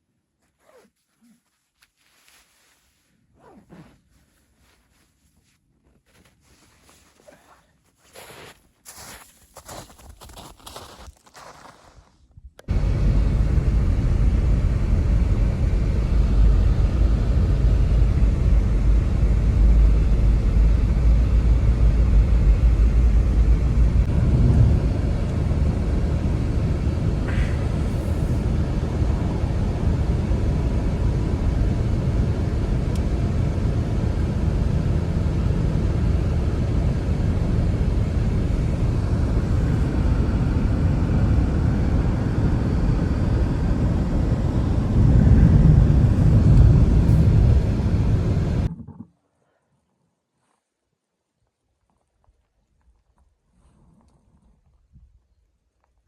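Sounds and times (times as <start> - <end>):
wind rumble on microphone: 12.4 - 49.1
snowstorm wind rushing: 12.7 - 48.7.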